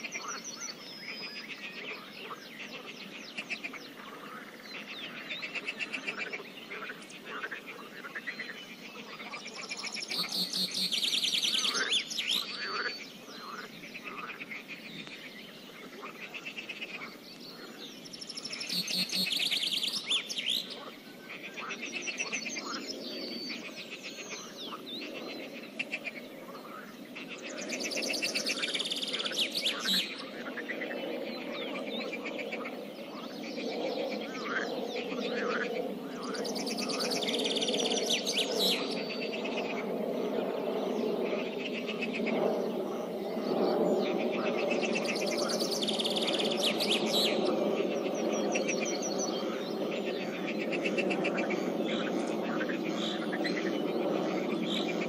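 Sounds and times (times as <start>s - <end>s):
frogs croaking: 0.0s - 55.0s
songbird trilling: 9.2s - 13.7s, 16.9s - 20.9s.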